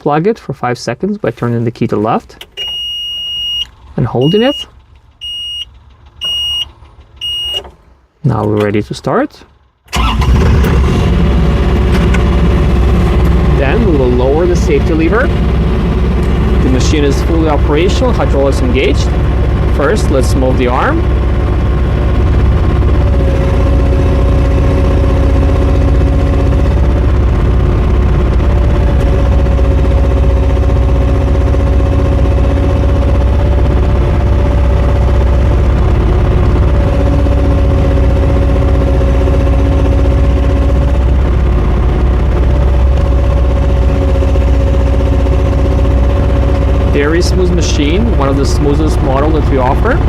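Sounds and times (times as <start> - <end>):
excavator diesel engine running: 9.5 - 50.0
hydraulic hum: 9.9 - 50.0.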